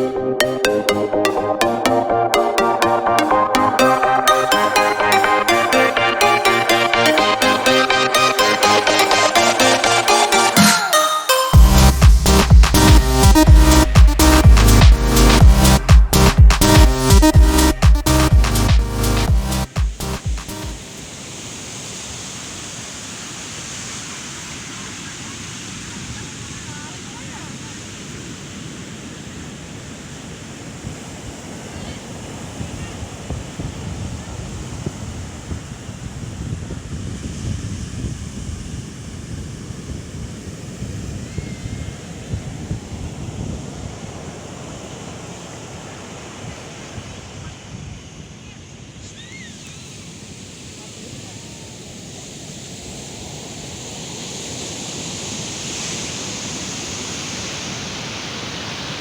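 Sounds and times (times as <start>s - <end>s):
ocean surf washing ashore: 0.0s - 11.4s, 19.7s - 59.0s
strong wind: 23.5s - 59.0s
wind buffeting the microphone: 27.3s - 44.8s.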